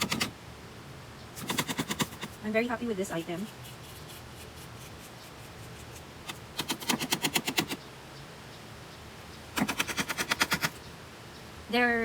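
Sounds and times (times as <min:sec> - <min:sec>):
rapid clicking of filter: 0:09.6 - 0:10.8.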